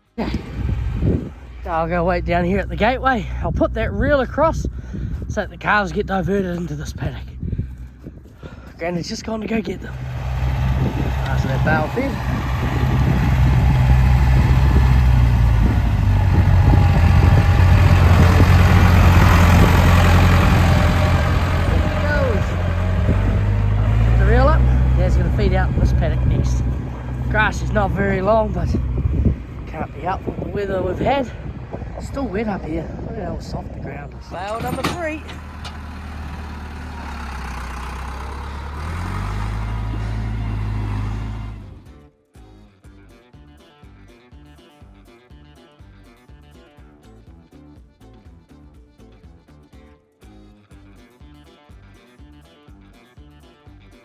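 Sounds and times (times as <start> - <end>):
vehicle engine running: 0.0 - 42.0.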